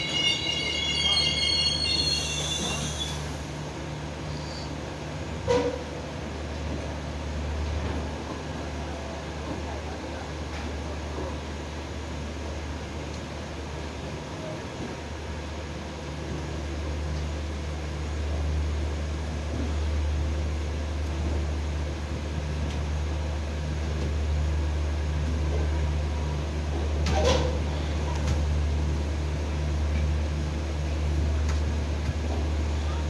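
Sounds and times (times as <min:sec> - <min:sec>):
short falling squeal: 0:00.0 - 0:03.4, 0:04.3 - 0:04.7
train mechanical hum: 0:00.0 - 0:33.0.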